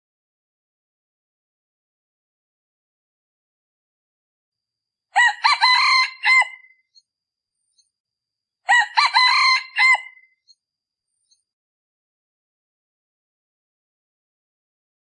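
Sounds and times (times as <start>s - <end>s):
rooster crowing: 5.2s - 6.7s, 8.7s - 10.3s.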